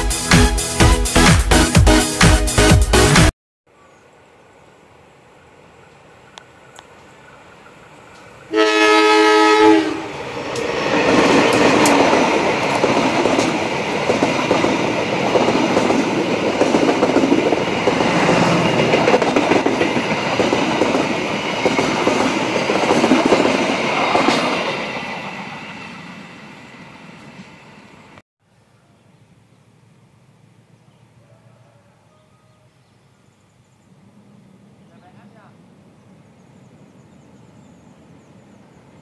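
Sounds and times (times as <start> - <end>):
train passing: 4.8 - 28.2, 33.9 - 39.0
locomotive air horn: 8.5 - 10.2.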